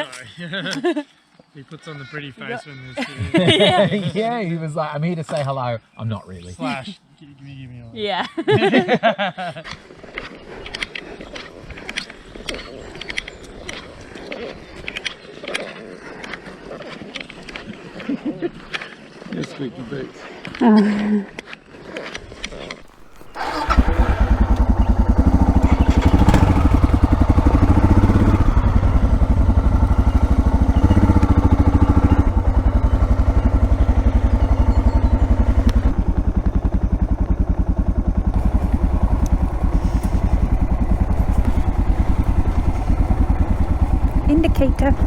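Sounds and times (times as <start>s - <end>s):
motorcycle engine starting and running: 22.7s - 45.0s.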